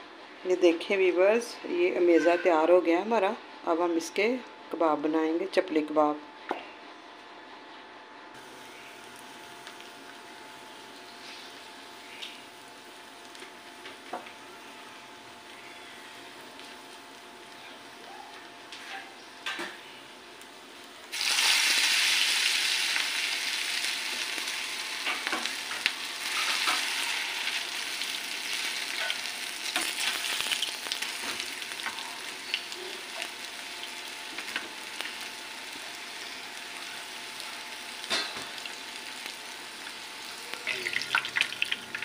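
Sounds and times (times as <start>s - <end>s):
patty sizzling in hot oil: 20.4s - 42.0s.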